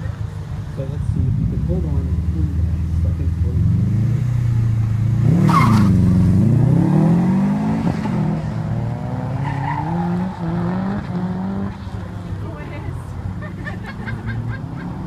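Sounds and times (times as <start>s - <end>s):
car engine revving: 0.0s - 15.0s
tyre squeal: 5.4s - 6.1s.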